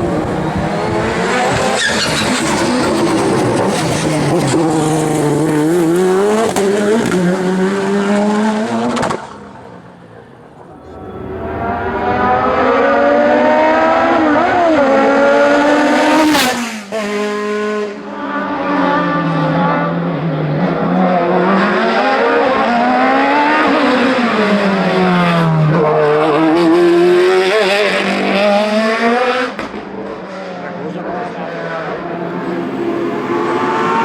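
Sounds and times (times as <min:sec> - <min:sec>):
race car engine revving: 0:00.0 - 0:24.2, 0:32.1 - 0:34.0.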